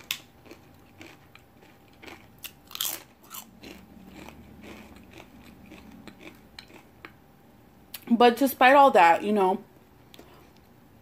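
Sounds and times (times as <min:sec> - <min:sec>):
chip crunching when chewed: 0:00.0 - 0:07.2.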